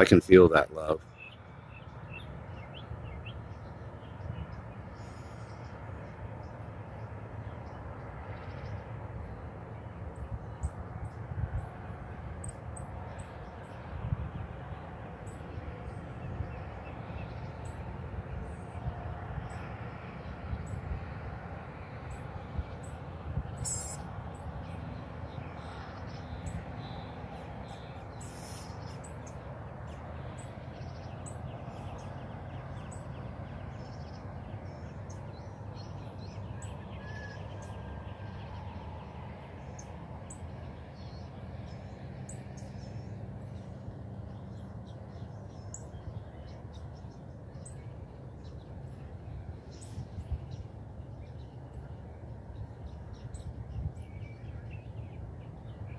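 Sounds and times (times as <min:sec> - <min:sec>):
birds chirping: 0:00.0 - 0:18.8, 0:22.0 - 0:55.9.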